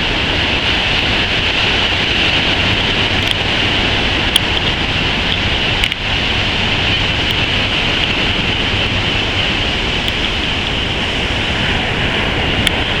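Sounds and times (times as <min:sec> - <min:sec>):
ocean surf at the shore: 0:00.0 - 0:13.0
wind: 0:00.0 - 0:13.0
faint ticks: 0:03.2 - 0:03.5, 0:10.0 - 0:10.8.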